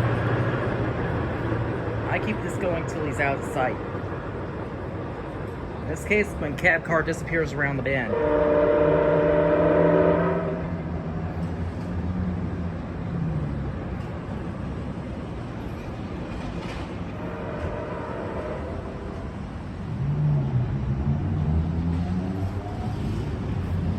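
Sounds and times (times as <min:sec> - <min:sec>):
diesel train rumbling: 0:00.0 - 0:23.9
train horn: 0:08.0 - 0:10.8, 0:17.2 - 0:19.3.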